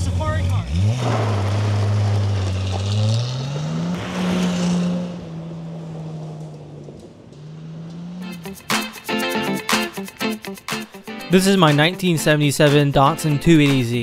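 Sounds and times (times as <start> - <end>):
car engine pulling under load: 0.0 - 9.2
strummed guitar music: 8.2 - 14.0.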